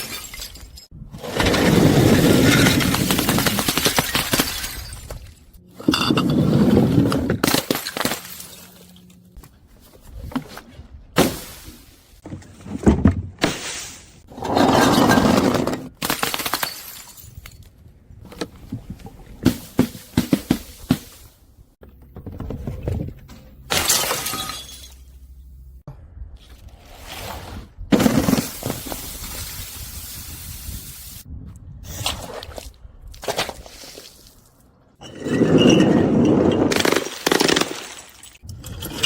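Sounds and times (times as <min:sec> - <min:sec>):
glass bottles crushing and shattering: 0:00.0 - 0:09.1, 0:14.3 - 0:17.6, 0:23.5 - 0:25.4, 0:35.0 - 0:39.0.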